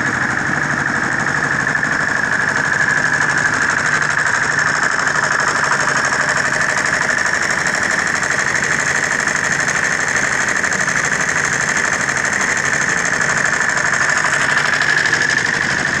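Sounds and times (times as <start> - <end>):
diesel engine clattering: 0.0 - 16.0.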